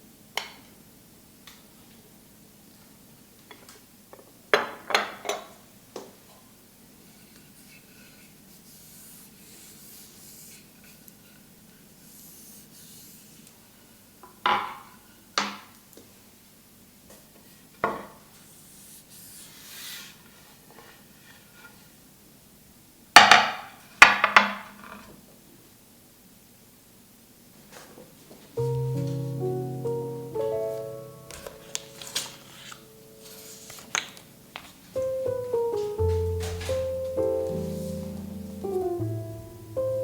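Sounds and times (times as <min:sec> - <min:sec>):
soft rubbing and rustling: 0:07.0 - 0:13.9, 0:18.3 - 0:22.0, 0:30.8 - 0:38.8.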